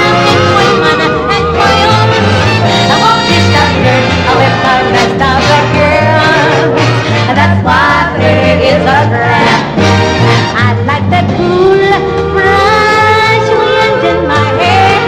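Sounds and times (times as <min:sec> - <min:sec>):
live band music: 0:00.0 - 0:15.0
steady bass line: 0:00.0 - 0:15.0.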